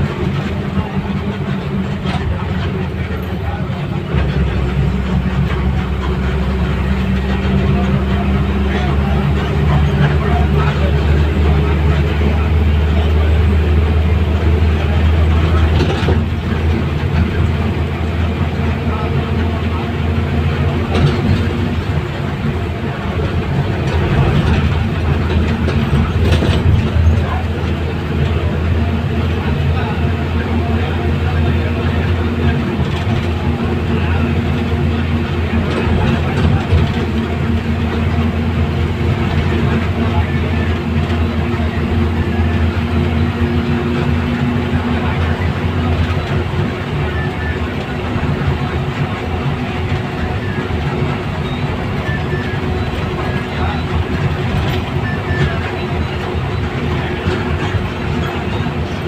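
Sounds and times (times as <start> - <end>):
heavy engine droning: 0.0 - 59.0.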